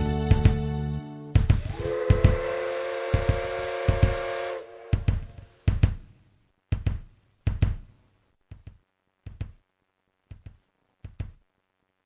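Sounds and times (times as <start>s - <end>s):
computer-generated percussion knocks: 1.4s - 2.4s, 3.2s - 4.2s, 4.9s - 6.1s, 6.7s - 7.9s, 8.5s - 9.6s, 10.3s - 11.4s.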